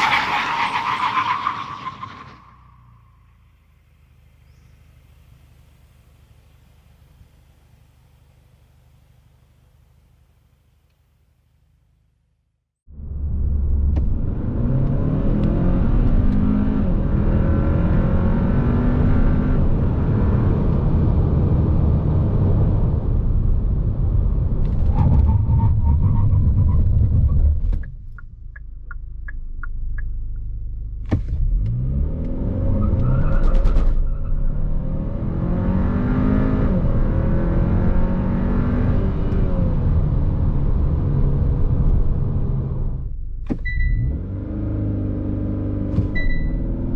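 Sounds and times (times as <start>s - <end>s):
car engine accelerating hard: 31.1s - 43.1s, 44.0s - 46.9s.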